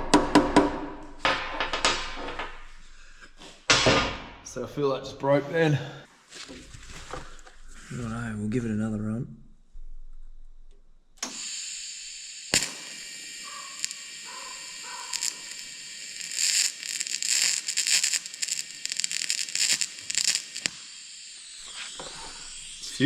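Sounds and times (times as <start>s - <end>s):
welding arc buzzing and hissing: 11.2s - 23.0s
welding crackling and spitting: 11.2s - 23.0s.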